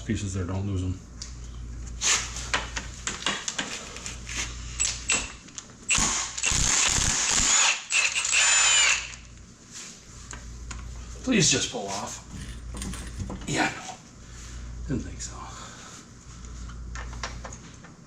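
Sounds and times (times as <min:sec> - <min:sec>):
mechanical tool noise: 0:04.8 - 0:09.3
metal tools and parts clinking: 0:12.3 - 0:13.4.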